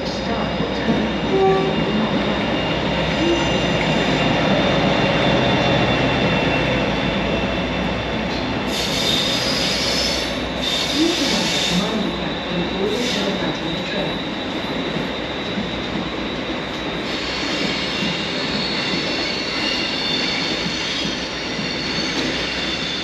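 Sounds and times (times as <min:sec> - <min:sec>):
train track noise: 0:00.0 - 0:23.0.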